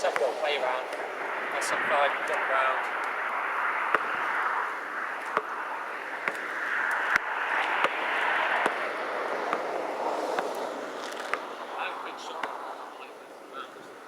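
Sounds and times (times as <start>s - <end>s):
wind noise: 0.0s - 14.0s
basketball bouncing knocks: 5.3s - 5.5s.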